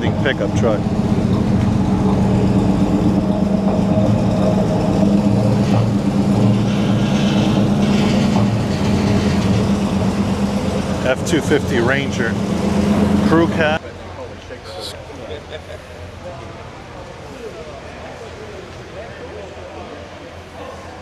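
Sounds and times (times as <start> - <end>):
pickup truck engine idling: 0.0 - 13.8.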